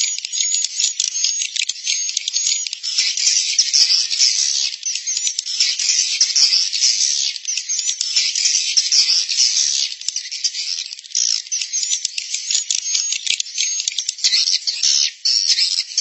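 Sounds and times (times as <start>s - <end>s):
swiftlets twittering and chirping: 0.0s - 16.0s.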